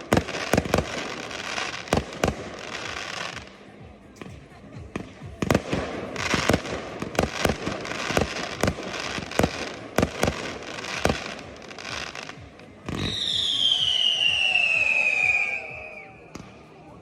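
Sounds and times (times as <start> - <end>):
fireworks bursting bangs: 0.0 - 16.7
fireworks crackling: 0.0 - 17.0.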